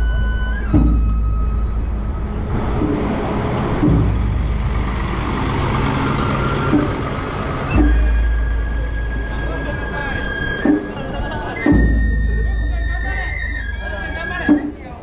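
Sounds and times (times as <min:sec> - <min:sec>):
wooden wheels rumbling on street: 0:00.0 - 0:15.0
faint held music tone: 0:06.2 - 0:15.0.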